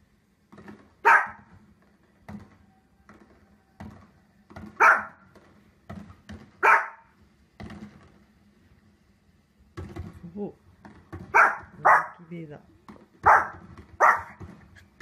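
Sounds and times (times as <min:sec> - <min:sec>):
small dog barking: 0:01.0 - 0:01.5, 0:04.8 - 0:05.2, 0:06.6 - 0:07.1, 0:11.3 - 0:12.3, 0:13.2 - 0:14.4.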